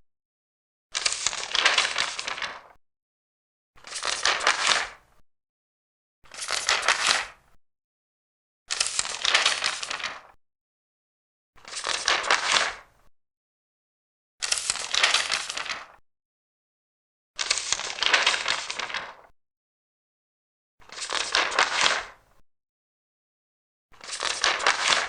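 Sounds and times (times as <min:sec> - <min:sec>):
paper pages turning: 0:01.0 - 0:02.8, 0:03.8 - 0:05.0, 0:06.3 - 0:07.4, 0:08.7 - 0:10.4, 0:11.7 - 0:12.8, 0:14.4 - 0:16.0, 0:17.4 - 0:19.3, 0:20.9 - 0:22.1, 0:24.0 - 0:25.0.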